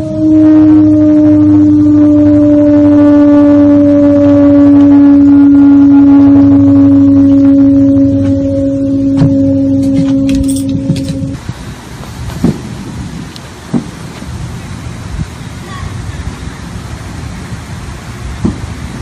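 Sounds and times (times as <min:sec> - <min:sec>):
low horn-like drone: 0:00.0 - 0:11.4
low rumbling hum: 0:00.0 - 0:19.0.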